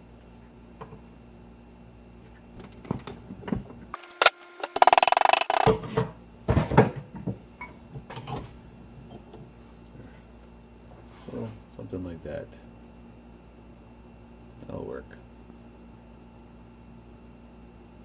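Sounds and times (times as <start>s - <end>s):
fast rattling buzz of a tool: 3.9s - 5.8s.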